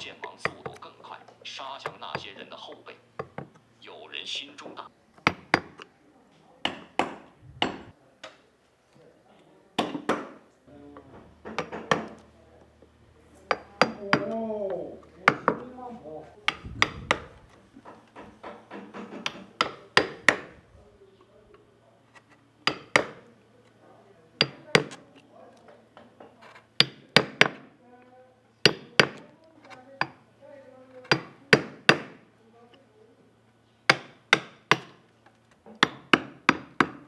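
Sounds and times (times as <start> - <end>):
mallet striking chisel into wood: 0.2 - 0.8, 3.2 - 3.7, 5.2 - 5.9, 6.6 - 7.9, 9.8 - 10.4, 11.0 - 12.3, 13.5 - 15.8, 16.4 - 20.6, 22.6 - 23.3, 24.4 - 25.0, 26.5 - 27.7, 28.6 - 29.3, 31.0 - 32.3, 33.9 - 35.1, 35.7 - 37.0.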